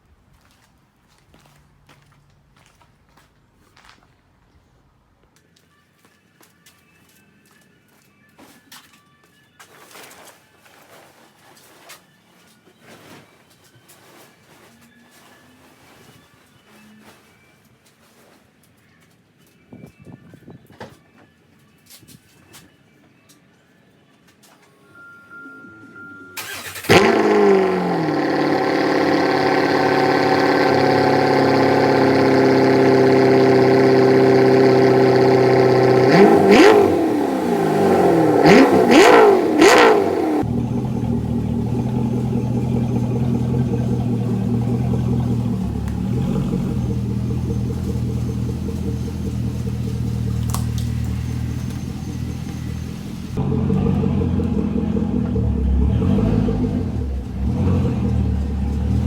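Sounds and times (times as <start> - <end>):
car engine starting and idling: 25.0 - 59.0
car engine revving: 25.8 - 59.0.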